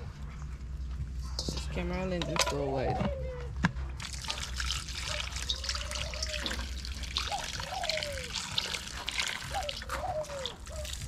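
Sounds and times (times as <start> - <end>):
rain pattering and dripping: 4.0 - 11.0.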